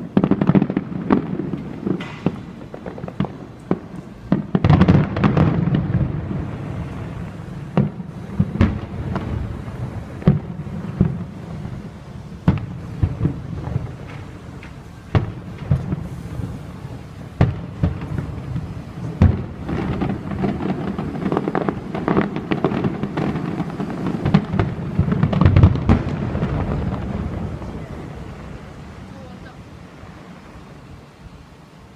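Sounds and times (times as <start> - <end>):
firework shells booming: 0.0 - 29.6
firework crackling: 0.0 - 31.9.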